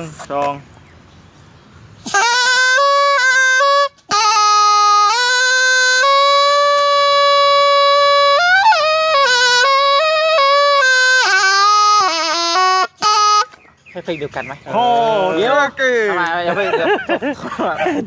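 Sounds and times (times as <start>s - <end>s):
reed oboe melody: 2.0s - 14.0s.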